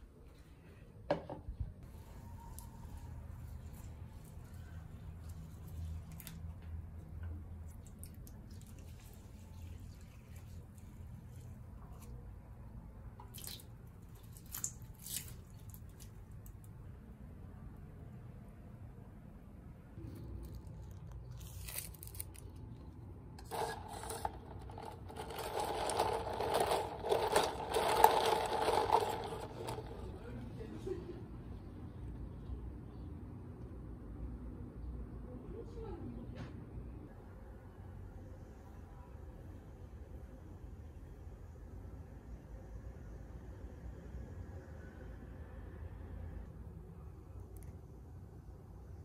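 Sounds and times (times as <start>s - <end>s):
water trickling onto soil: 2.5s - 6.7s, 7.6s - 12.2s, 13.2s - 16.7s
ice rattling: 23.4s - 30.2s.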